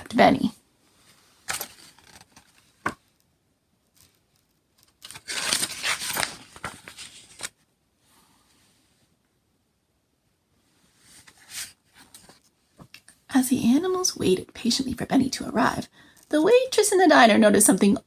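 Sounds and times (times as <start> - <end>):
paper pages rustling: 1.1 - 3.0, 4.0 - 7.6, 11.1 - 12.5.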